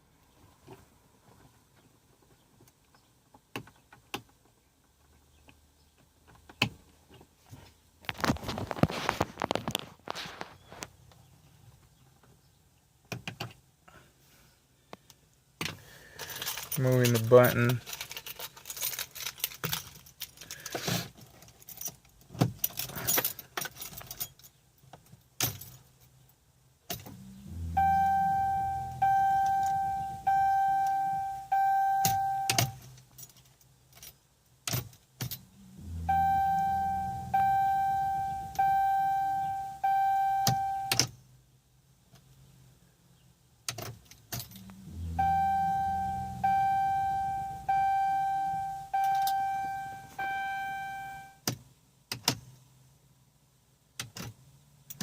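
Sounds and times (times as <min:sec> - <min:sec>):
keys jangling: 0:16.2 - 0:24.5
electronic warning chimes: 0:27.2 - 0:32.8, 0:35.8 - 0:41.0, 0:44.6 - 0:51.4.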